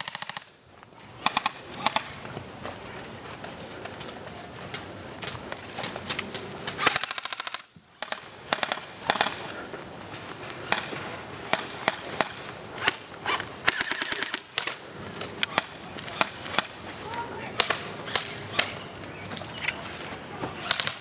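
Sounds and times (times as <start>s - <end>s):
airsoft guns firing: 0.0s - 0.6s, 1.2s - 2.2s, 6.7s - 9.5s, 10.7s - 16.8s, 17.5s - 18.8s, 20.6s - 21.0s.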